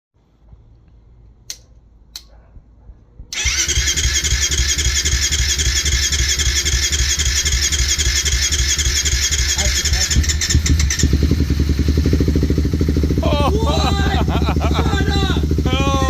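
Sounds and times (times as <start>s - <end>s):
engine starting and running: 3.3s - 16.0s.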